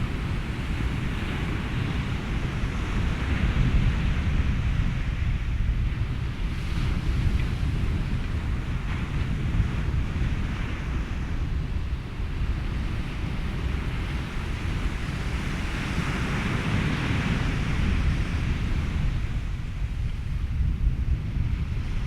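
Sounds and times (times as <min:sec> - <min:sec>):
ocean surf: 0:00.0 - 0:22.0
wind: 0:00.0 - 0:22.0.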